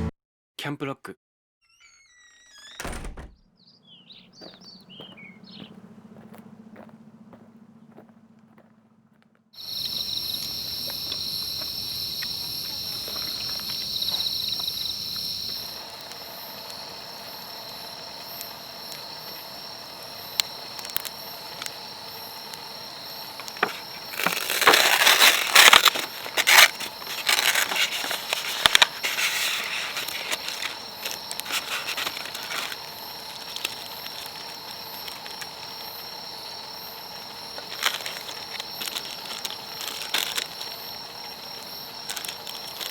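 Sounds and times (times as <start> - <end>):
insects chirping: 1.8 - 42.9
loud irregular clicks and rustles: 23.4 - 35.7, 37.6 - 41.4.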